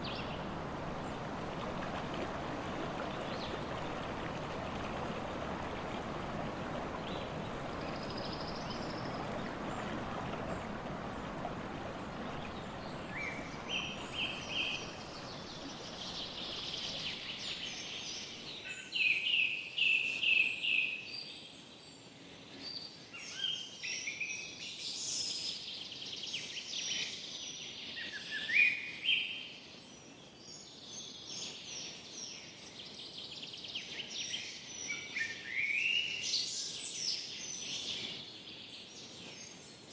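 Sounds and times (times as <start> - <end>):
running water: 0.0 - 18.6
songbirds singing: 0.0 - 21.6.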